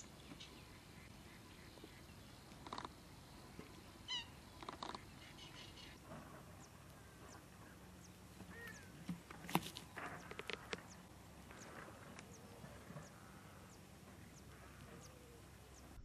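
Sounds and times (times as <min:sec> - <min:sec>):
steady low outdoor hiss: 0:00.0 - 0:16.0
wading birds calling: 0:00.0 - 0:16.0.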